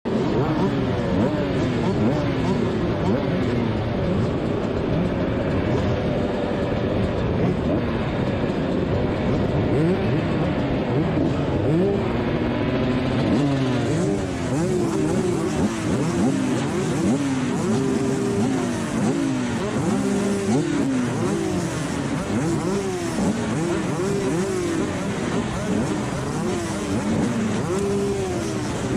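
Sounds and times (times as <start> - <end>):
motocross engine accelerating: 0.1 - 28.9.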